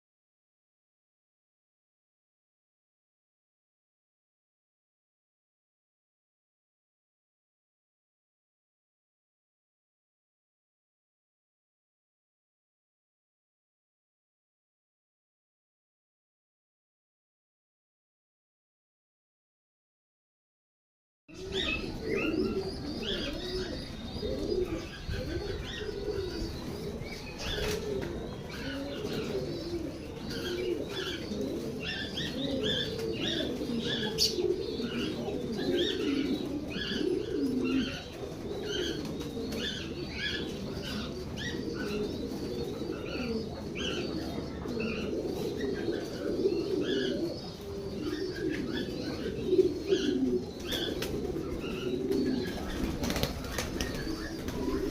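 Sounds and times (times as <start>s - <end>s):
pigeons cooing: 21.3s - 54.9s.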